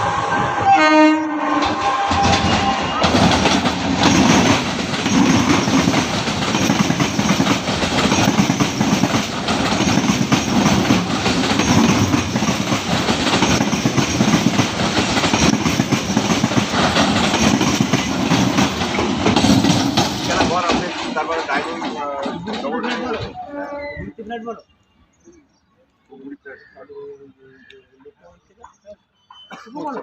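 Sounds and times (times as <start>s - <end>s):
train wheels clattering: 1.5s - 23.4s.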